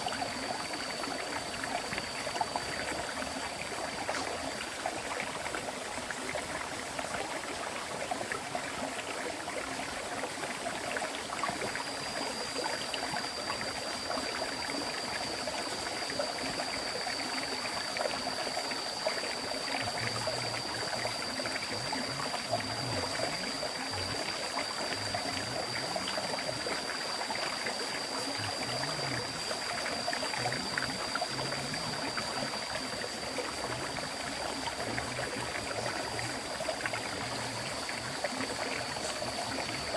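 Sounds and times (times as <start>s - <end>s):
thin steady high tone: 0.0s - 39.9s
stream water rushing: 11.4s - 39.9s.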